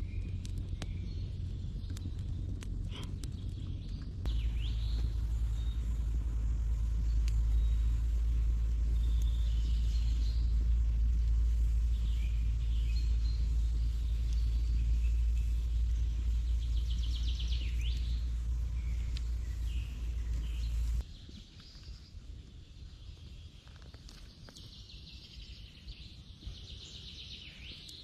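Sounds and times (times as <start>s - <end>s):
birds calling and chirping: 0.0s - 22.2s, 22.8s - 28.0s
deep rumble: 0.0s - 27.8s
bird trill: 4.3s - 21.0s.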